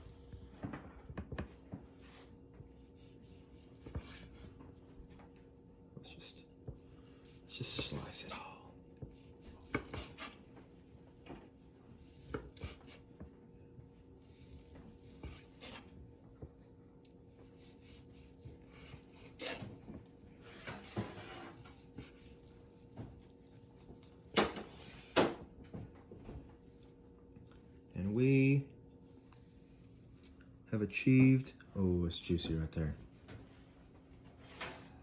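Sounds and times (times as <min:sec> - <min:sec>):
faint steady hum: 0:00.0 - 0:35.0
knife sawing through steak: 0:02.8 - 0:04.4, 0:09.2 - 0:10.5, 0:12.0 - 0:13.1, 0:14.3 - 0:15.9, 0:17.4 - 0:19.7.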